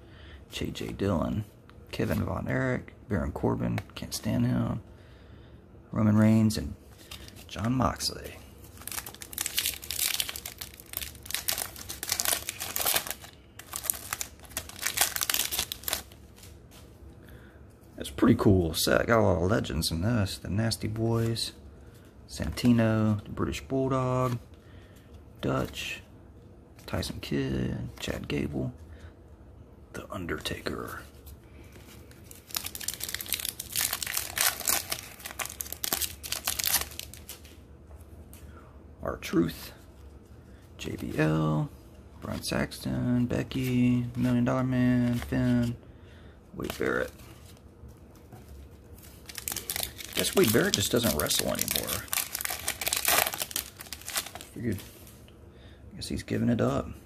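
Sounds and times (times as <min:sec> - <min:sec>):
plastic wrapper crackling: 0:08.7 - 0:16.2, 0:32.1 - 0:37.5, 0:49.0 - 0:54.7.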